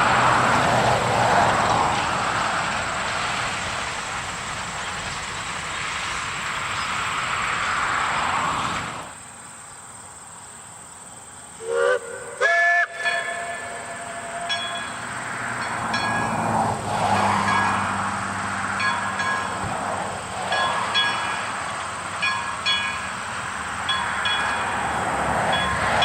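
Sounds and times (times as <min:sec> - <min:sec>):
train running rumble: 0:00.0 - 0:26.0
train horn blasts: 0:11.6 - 0:18.0.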